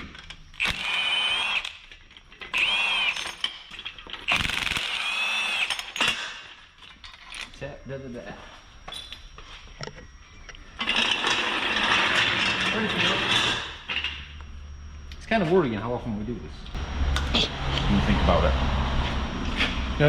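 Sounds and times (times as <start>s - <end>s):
power tool motor whine: 0.5s - 3.5s, 4.2s - 6.3s.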